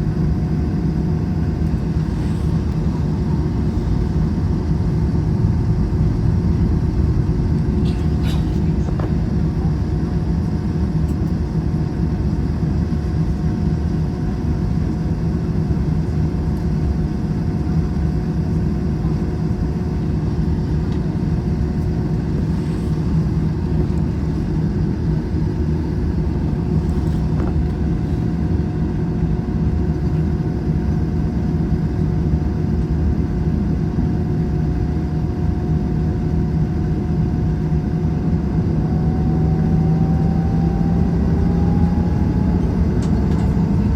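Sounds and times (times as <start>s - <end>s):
steady hum tones: 0.0s - 33.9s, 34.6s - 43.9s
aircraft cabin engine drone: 0.0s - 43.9s.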